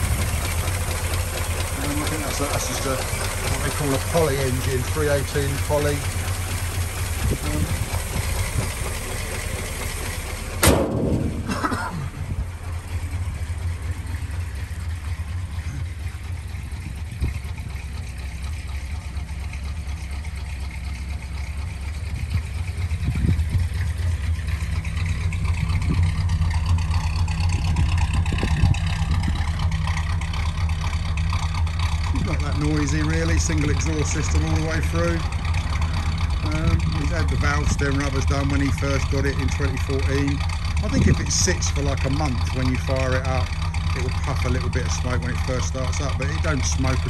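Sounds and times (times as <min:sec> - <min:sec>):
car engine idling: 0:00.0 - 0:47.0
loud bang: 0:10.6 - 0:11.7.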